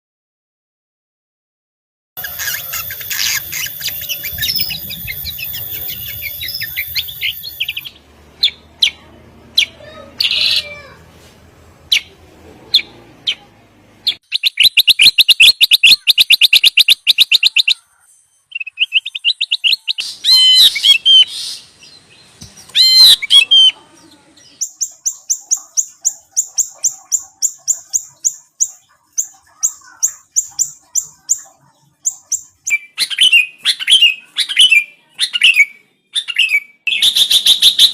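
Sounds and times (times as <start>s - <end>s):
bulbuls calling: 2.2s - 10.8s, 18.8s - 35.5s.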